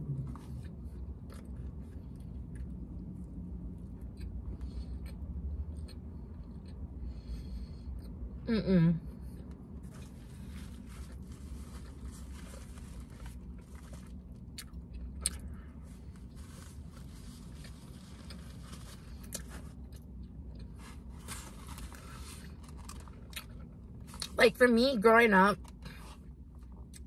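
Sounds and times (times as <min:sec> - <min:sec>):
low hum: 0:00.0 - 0:27.0
chewing: 0:00.2 - 0:02.8.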